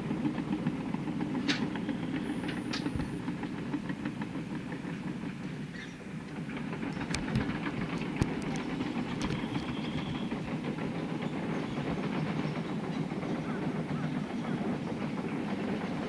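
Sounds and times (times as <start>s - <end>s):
sharp clicks: 7.0s - 10.1s.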